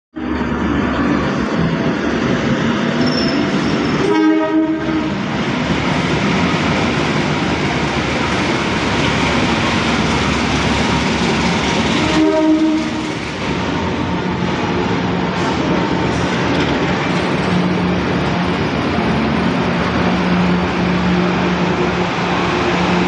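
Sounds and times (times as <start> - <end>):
train rumbling: 0.2 - 23.0
train horn blast: 3.9 - 5.2, 12.0 - 13.0.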